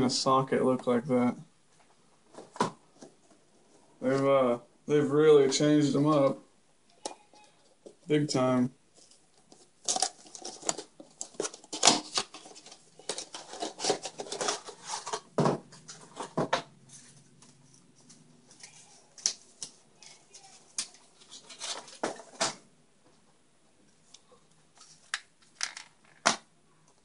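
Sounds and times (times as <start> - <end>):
handling plastic parts and packaging: 8.9 - 22.6, 24.2 - 27.0.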